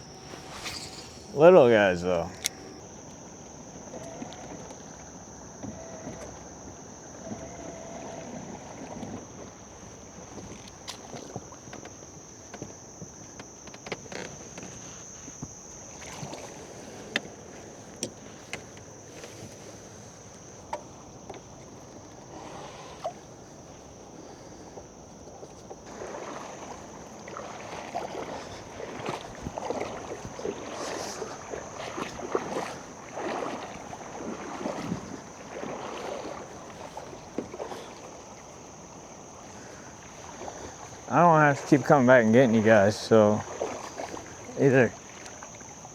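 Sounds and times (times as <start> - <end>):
paddle strokes splashing water: 0.0 - 45.9
paddle knocking against boat: 24.7 - 45.8.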